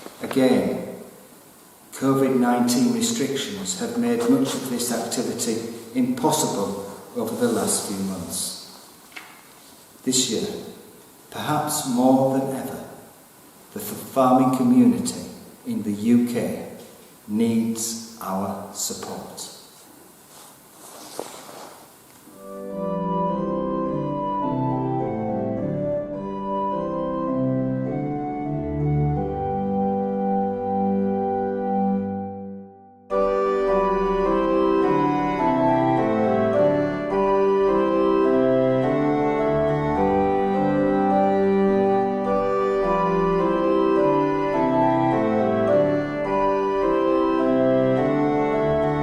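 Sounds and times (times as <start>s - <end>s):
organ playing held chords: 22.3s - 49.0s.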